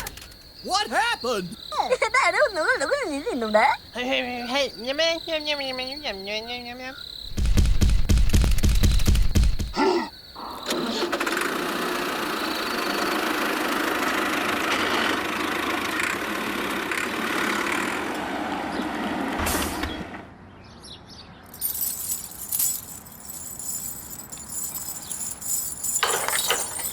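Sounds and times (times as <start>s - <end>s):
light clicks and clinks: 21.5s - 26.9s.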